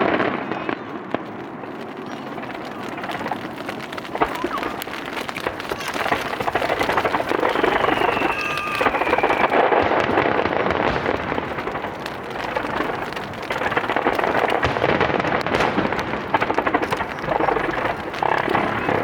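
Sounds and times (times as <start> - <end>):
fireworks crackling: 0.0 - 19.0
rain pattering: 0.0 - 19.0
faint falling whistle: 7.3 - 9.7.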